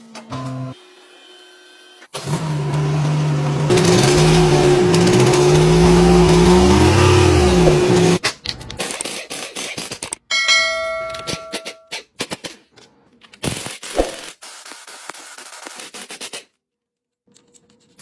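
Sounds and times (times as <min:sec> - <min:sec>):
vehicle engine revving: 0:02.2 - 0:08.2.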